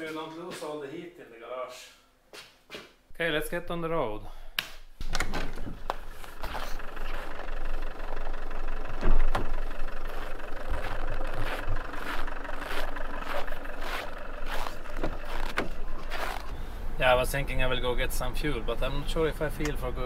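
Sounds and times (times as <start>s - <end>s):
car engine idling: 5.5s - 20.0s
footsteps crunching on snow: 5.8s - 7.8s, 9.6s - 16.6s.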